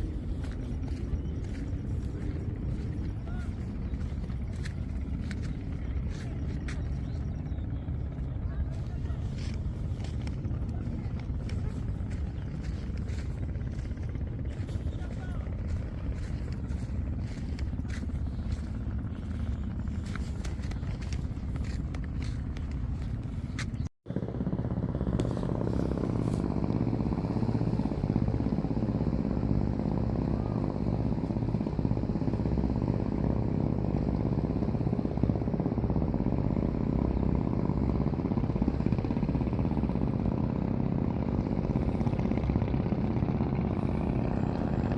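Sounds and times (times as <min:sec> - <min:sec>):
engine chugging: 0:00.0 - 0:44.9.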